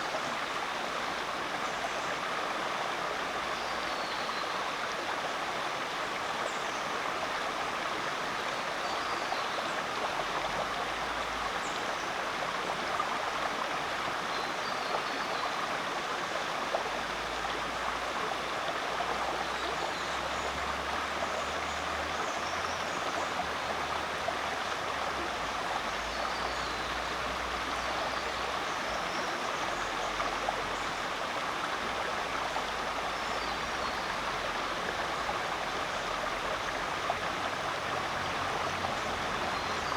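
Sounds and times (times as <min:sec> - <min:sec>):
creek water rushing: 0:00.0 - 0:39.9.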